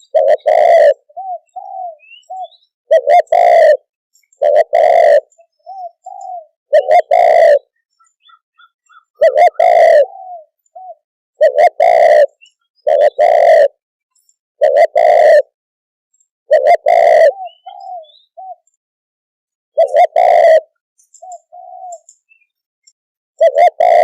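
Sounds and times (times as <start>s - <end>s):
dove cooing: 0.0s - 13.8s, 14.6s - 15.6s, 16.5s - 18.7s, 19.8s - 22.4s, 23.4s - 24.0s.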